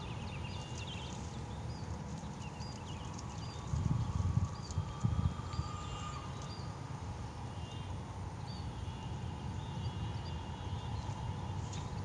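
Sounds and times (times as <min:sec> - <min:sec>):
small birds chirping: 0:00.0 - 0:06.8
steady low rumble: 0:00.0 - 0:07.2.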